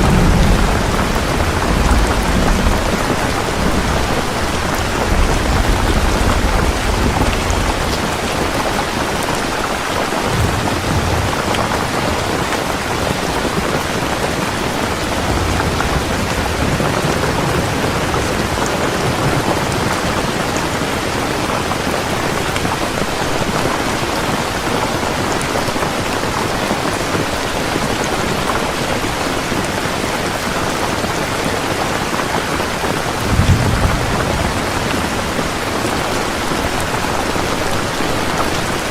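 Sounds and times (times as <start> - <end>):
thunder rumbling: 0.0 - 22.8, 32.5 - 38.9
heavy rain falling: 0.0 - 38.9.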